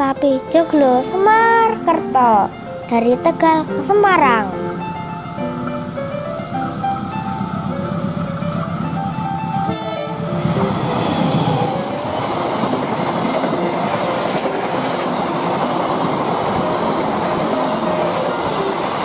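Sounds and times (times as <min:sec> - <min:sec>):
diesel locomotive passing: 0:00.0 - 0:19.0
train wheels on rail: 0:00.7 - 0:19.0.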